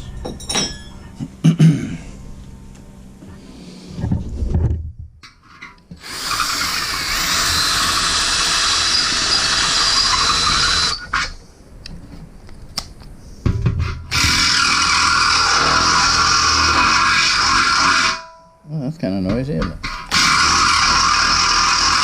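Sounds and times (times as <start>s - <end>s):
power tool grinding metal: 5.9s - 11.4s, 14.1s - 18.3s, 19.8s - 22.0s.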